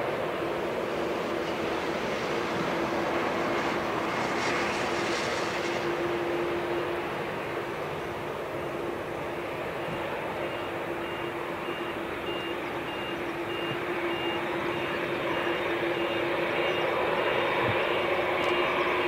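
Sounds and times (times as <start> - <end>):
jet engines roaring: 0.0 - 19.0
high electronic beeps: 10.5 - 16.8.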